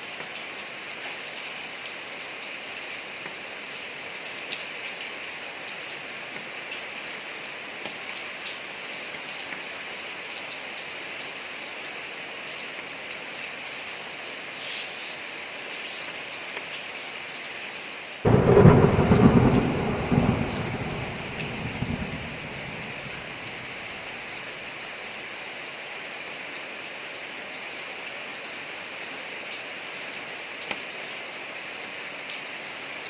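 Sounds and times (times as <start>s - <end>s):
rain falling on a street: 0.0s - 33.0s
thunder clap and rumble: 18.3s - 24.4s.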